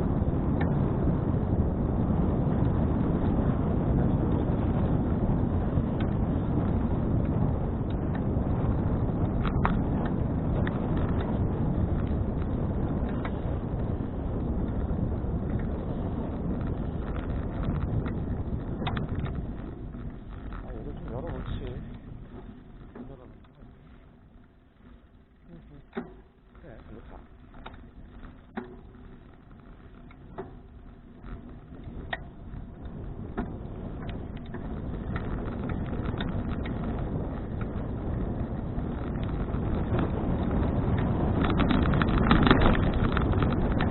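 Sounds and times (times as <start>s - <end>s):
wind buffeting microphone: 0.0s - 43.9s
light clicks and rattles: 15.4s - 43.9s.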